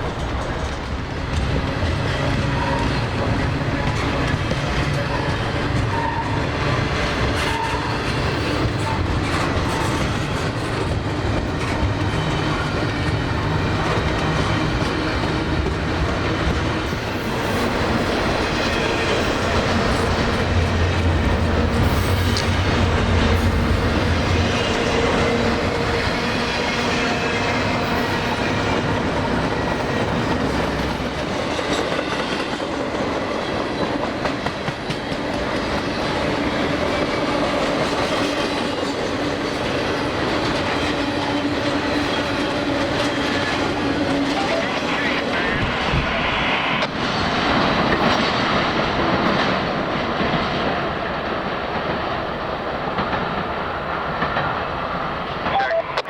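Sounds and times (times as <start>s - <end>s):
train wheels clacking over rail joints: 0.0s - 44.4s
low train rumble: 0.0s - 56.0s.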